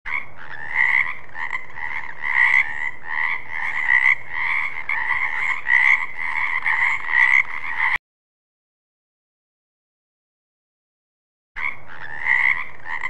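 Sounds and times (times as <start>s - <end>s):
frog chorus: 0.1s - 8.0s, 11.6s - 13.0s
frog croaking: 0.1s - 8.0s, 11.6s - 13.0s.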